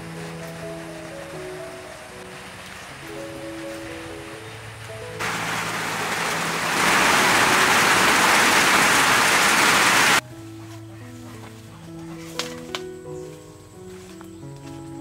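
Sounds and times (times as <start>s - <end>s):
heavy rain falling: 0.0s - 10.2s.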